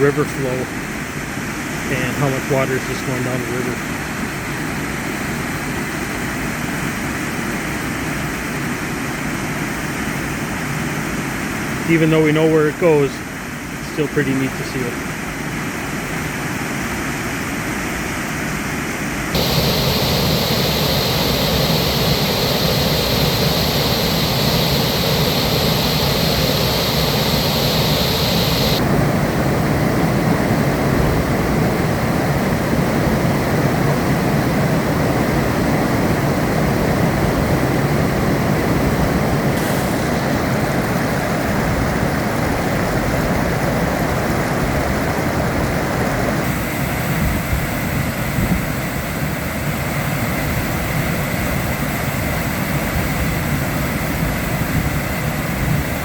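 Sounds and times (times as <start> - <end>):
waterfall roaring: 19.4 - 34.6.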